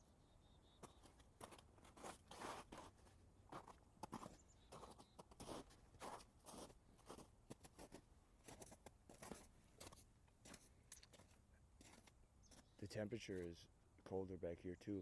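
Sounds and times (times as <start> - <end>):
footsteps crunching through snow: 0.8 - 12.8.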